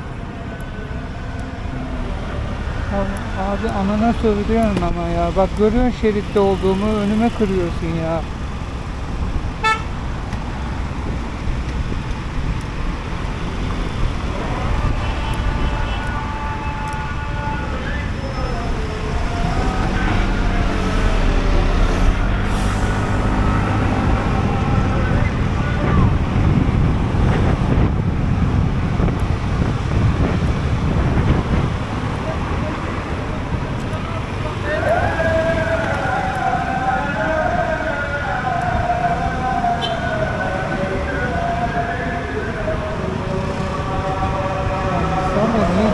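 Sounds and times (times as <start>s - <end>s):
scooter engine: 0.0s - 17.4s
road noise: 0.0s - 45.9s
scooter engine whine: 0.0s - 45.9s
wind buffeting microphone: 0.0s - 45.9s.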